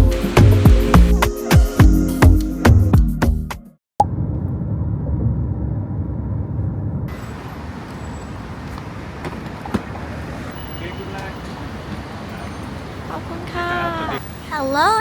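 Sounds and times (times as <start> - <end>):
road traffic rumble: 0.0 - 1.2, 4.0 - 15.0
hiss: 0.0 - 1.3.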